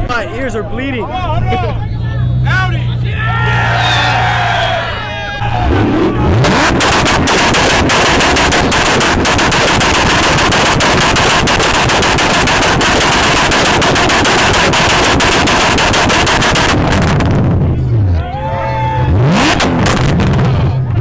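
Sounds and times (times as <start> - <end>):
exhaust pops and bangs: 5.4 - 17.8, 19.4 - 21.0
car engine at high revs: 5.4 - 18.2, 19.0 - 21.0.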